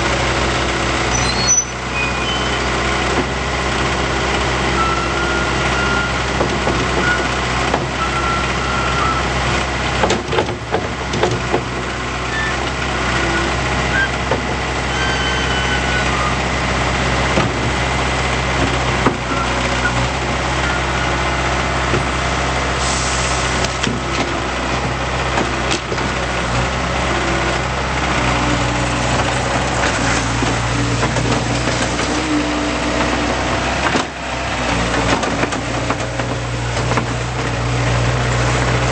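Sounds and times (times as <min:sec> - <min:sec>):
diesel engine running: 0:00.0 - 0:38.9
short high squeaks: 0:01.1 - 0:02.7, 0:12.3 - 0:12.6, 0:13.2 - 0:14.2, 0:14.8 - 0:16.4.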